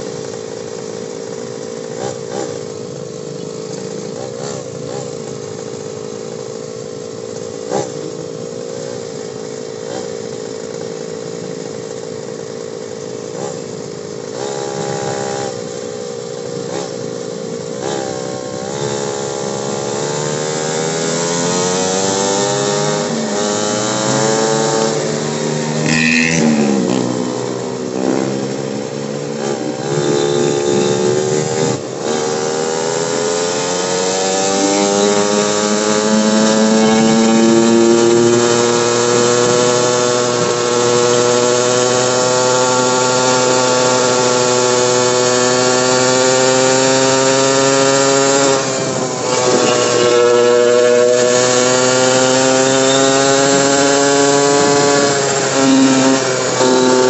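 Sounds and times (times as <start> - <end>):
motorcycle engine: 0.0 - 57.0
road and wind noise: 0.0 - 57.0
brief high-pitched sound: 36.6 - 38.2.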